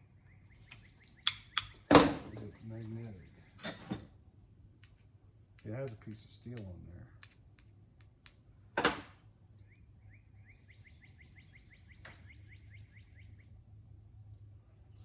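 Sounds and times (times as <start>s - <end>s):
bird trilling: 0.0s - 3.7s, 9.6s - 13.6s
low steady hum: 0.0s - 15.0s
parts handled clicking and knocking: 7.2s - 9.0s.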